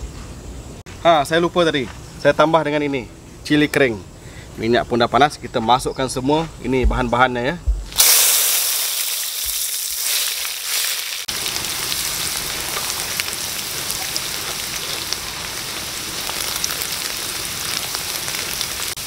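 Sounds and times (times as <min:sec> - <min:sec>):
aromatics sizzling in hot oil: 0:07.9 - 0:19.0.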